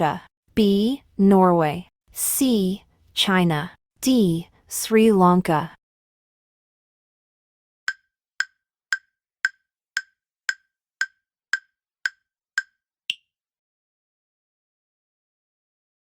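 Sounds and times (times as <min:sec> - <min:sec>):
wood-block-like timer ticks: 0:07.9 - 0:13.3.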